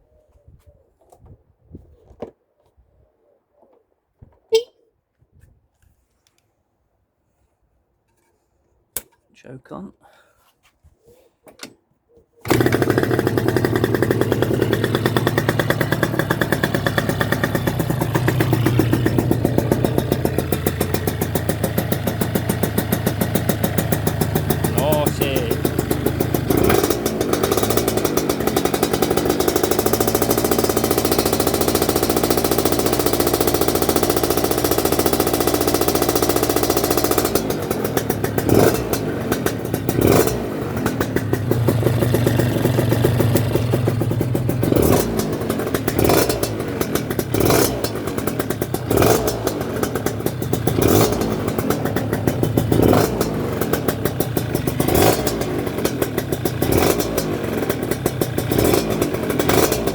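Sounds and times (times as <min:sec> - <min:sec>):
scooter engine revving: 0:12.4 - 0:59.9.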